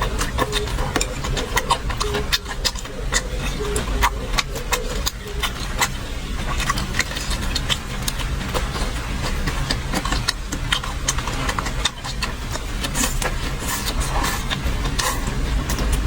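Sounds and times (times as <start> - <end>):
chewing food clicks and smacks: 0.0 - 16.0
low mechanical hum: 0.0 - 16.0.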